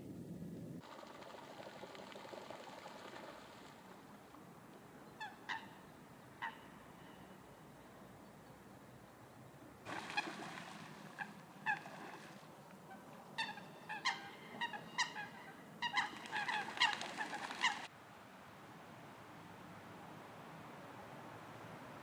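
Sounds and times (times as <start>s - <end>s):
bird honking calls: 5.1s - 7.4s, 12.9s - 17.9s.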